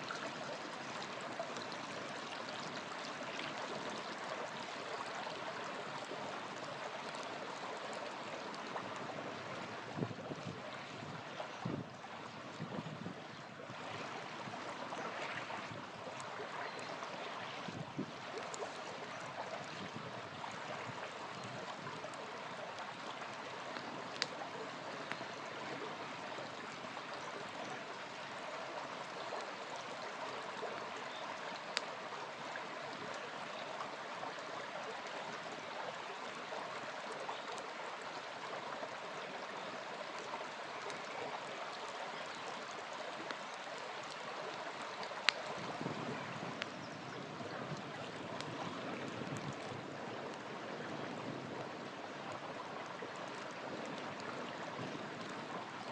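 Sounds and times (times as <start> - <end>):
small river flowing: 0.0 - 55.9
campfire pops: 23.7 - 24.4.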